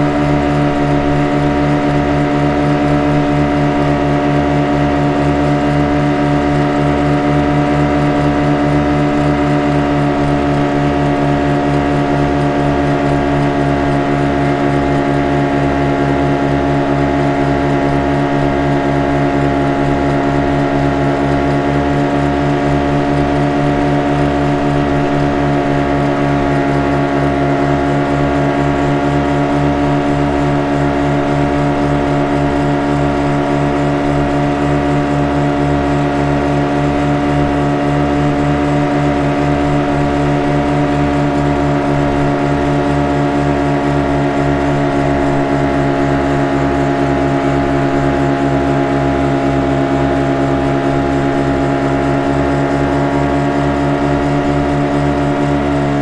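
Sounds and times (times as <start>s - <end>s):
motorboat engine droning: 0.0s - 56.0s.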